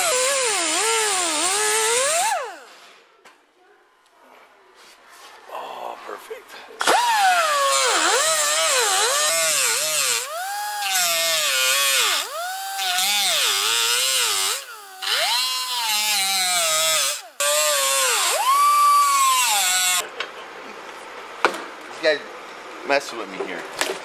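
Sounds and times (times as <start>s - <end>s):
power tool whining on sheet metal: 0.0s - 2.7s, 6.8s - 20.0s.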